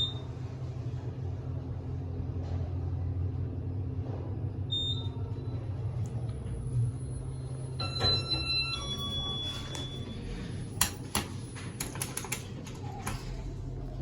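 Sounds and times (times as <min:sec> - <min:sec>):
elevator hum: 0:00.0 - 0:14.0
elevator door clicks: 0:10.7 - 0:13.4.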